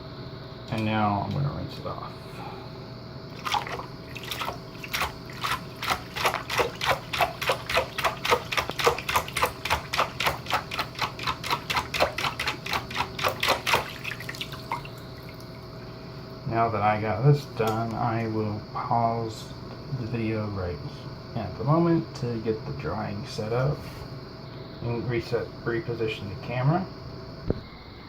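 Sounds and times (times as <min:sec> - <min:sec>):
water splashing on plastic: 0:03.3 - 0:15.8.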